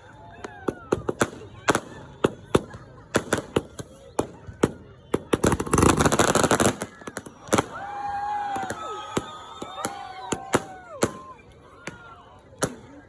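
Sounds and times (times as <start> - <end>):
firecracker crackling burst: 0.4 - 13.0
fireworks bangs: 0.4 - 13.0.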